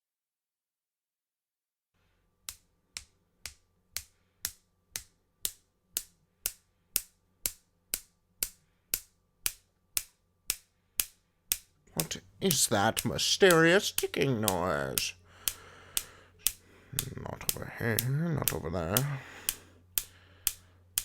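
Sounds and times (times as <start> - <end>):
sharp ticking: 5.0 - 21.0.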